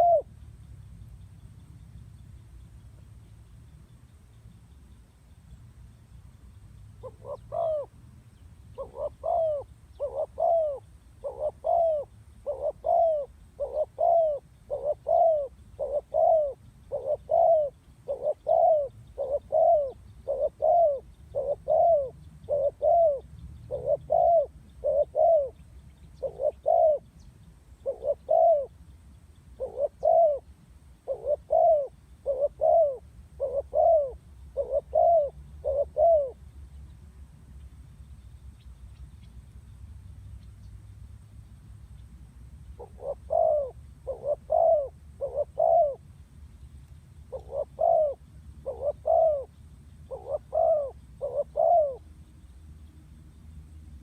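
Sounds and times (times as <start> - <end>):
dove cooing: 0.0 - 0.3, 7.0 - 8.0, 8.7 - 25.6, 26.2 - 27.1, 27.8 - 28.7, 29.6 - 36.4, 42.8 - 46.0, 47.3 - 52.1.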